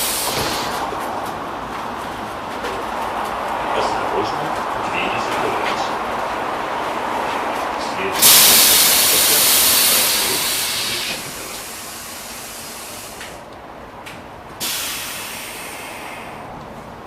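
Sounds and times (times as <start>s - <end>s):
loud hiss: 0.0s - 0.8s, 8.1s - 13.4s, 14.6s - 16.5s
tram rolling on rails: 0.0s - 17.0s.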